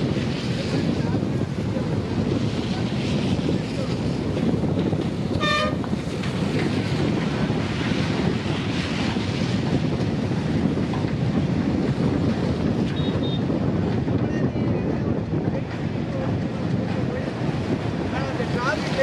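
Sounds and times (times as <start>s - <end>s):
train rumbling along track: 0.0s - 19.0s
train horn toot: 5.4s - 5.8s.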